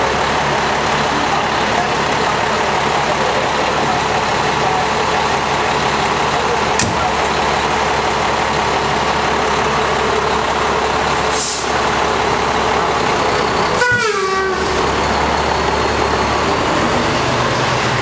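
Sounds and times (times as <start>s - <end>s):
fire engine diesel engine: 0.0s - 18.0s
hiss of air: 11.2s - 11.8s
air horn blast: 13.7s - 14.8s.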